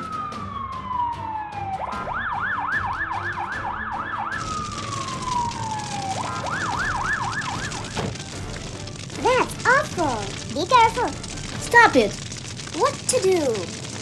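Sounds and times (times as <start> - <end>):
cartoon siren wailing and warbling: 12.8 - 13.7.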